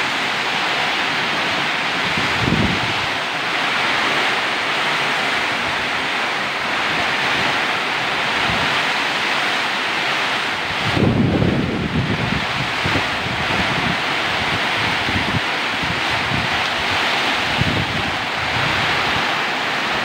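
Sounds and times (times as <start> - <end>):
steady rushing noise: 0.0 - 20.0
wind rumble on microphone: 1.2 - 4.3, 6.9 - 9.2, 10.6 - 20.0.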